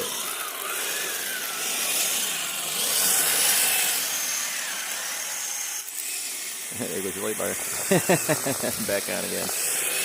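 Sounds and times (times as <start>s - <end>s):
electric motor and gear whine: 0.0s - 10.0s.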